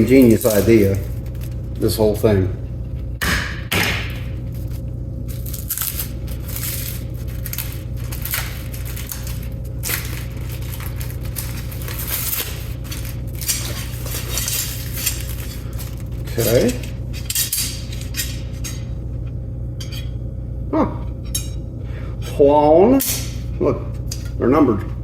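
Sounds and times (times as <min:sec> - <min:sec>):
packaging rustling and crinkling: 0:00.0 - 0:01.9, 0:04.4 - 0:16.9
low electrical hum: 0:00.0 - 0:25.0
small metal parts clinking: 0:08.8 - 0:18.8.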